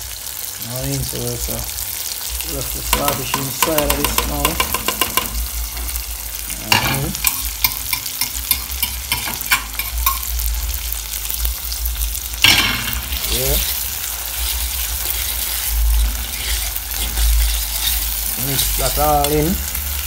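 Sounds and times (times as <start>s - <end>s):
food sizzling in a pan: 0.0s - 20.0s
utensil clicking against pan: 2.9s - 5.5s, 6.7s - 10.3s.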